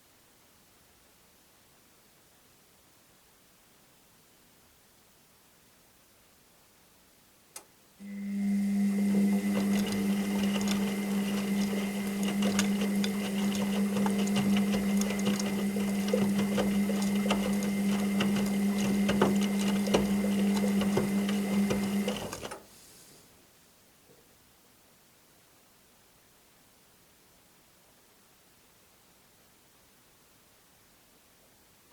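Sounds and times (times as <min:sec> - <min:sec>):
washing machine motor hum: 0:08.0 - 0:22.7
washing machine clicks and rattles: 0:08.7 - 0:22.7.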